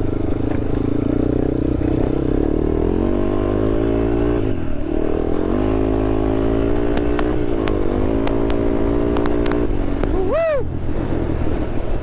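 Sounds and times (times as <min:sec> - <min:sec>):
quad bike engine running: 0:00.0 - 0:12.0
sharp clicks: 0:06.9 - 0:10.1
person calling out: 0:10.1 - 0:10.7.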